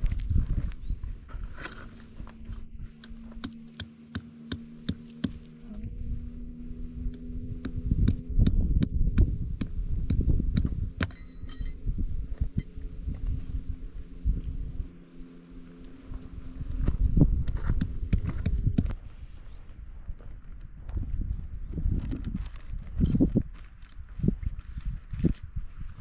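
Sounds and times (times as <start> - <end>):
low steady hum: 0.0 - 26.0
hammer striking tent pegs: 3.0 - 5.5.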